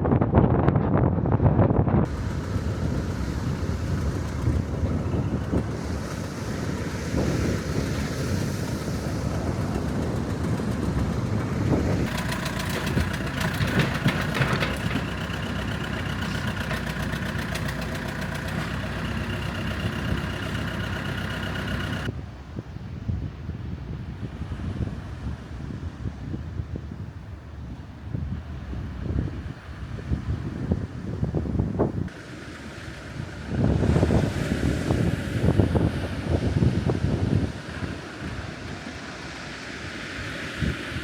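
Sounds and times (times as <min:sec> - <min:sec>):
wind rumbling on the microphone: 0:00.0 - 0:41.0
fast ticking: 0:09.1 - 0:22.1.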